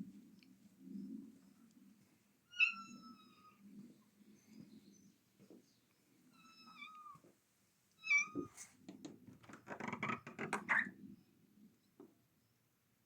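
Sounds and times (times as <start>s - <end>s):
cat meowing: 8.0s - 8.6s
clicks and rustling: 8.6s - 10.9s.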